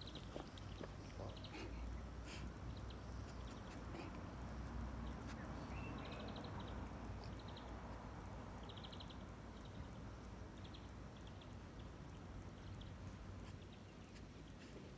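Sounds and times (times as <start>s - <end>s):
small birds trilling: 0.0s - 4.1s.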